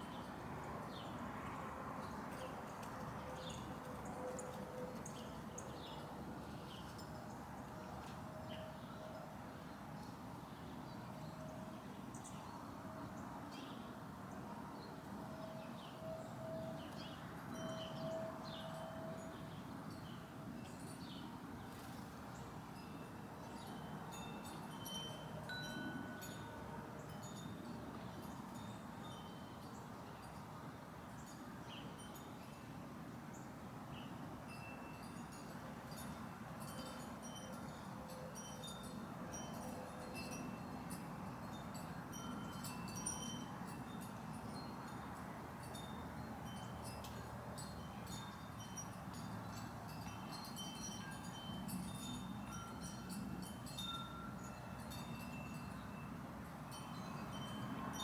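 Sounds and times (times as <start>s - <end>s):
wind chimes ringing: 15.6s - 30.4s, 34.5s - 58.0s.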